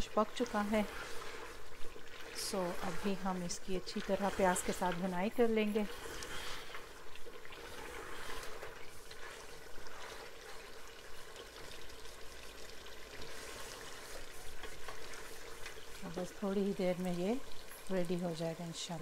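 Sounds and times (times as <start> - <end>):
meat sizzling in oil: 0.0 - 19.0
spoon stirring in pot: 0.4 - 11.5.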